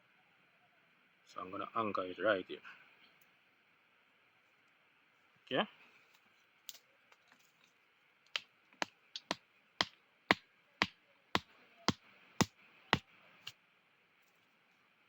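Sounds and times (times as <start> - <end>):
stone knocking wooden stake: 8.3 - 12.5.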